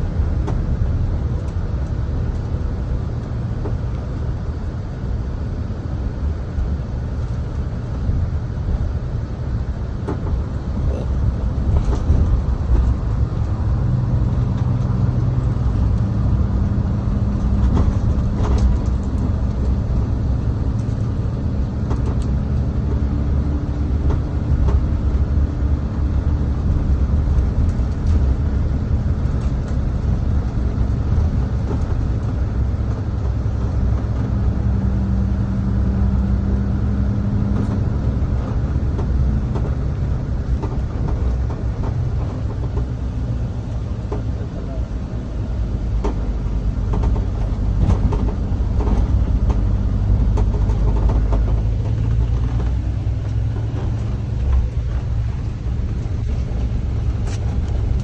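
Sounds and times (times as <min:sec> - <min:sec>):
engine hum: 0:00.0 - 0:58.0
vehicle engine rumbling: 0:00.0 - 0:58.0.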